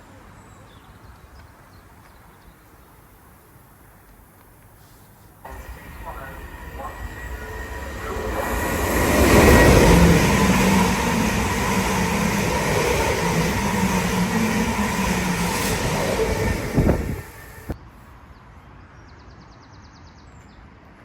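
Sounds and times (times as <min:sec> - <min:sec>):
electric train passing: 0:05.4 - 0:17.8.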